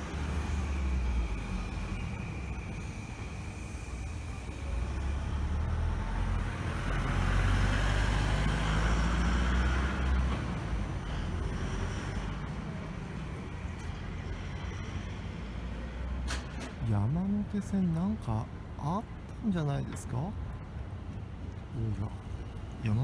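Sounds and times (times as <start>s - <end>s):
steady traffic noise: 0.0s - 23.0s.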